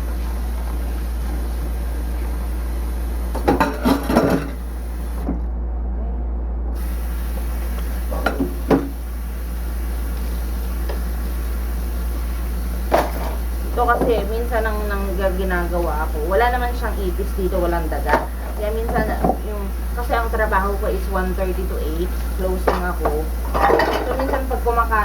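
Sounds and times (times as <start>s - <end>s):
steady low hum: 0.0s - 25.0s
dishes clattering: 3.4s - 4.6s, 8.1s - 9.0s, 12.9s - 14.4s, 18.1s - 19.4s, 22.6s - 24.7s.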